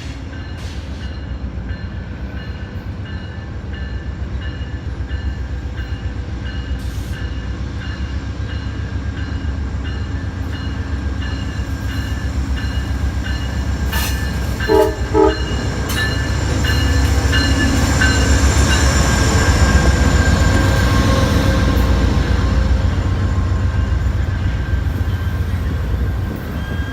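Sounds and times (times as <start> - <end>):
diesel locomotive engine rumble: 0.0 - 26.9
train bell ringing: 0.1 - 26.9
train horn blasts: 14.6 - 16.1.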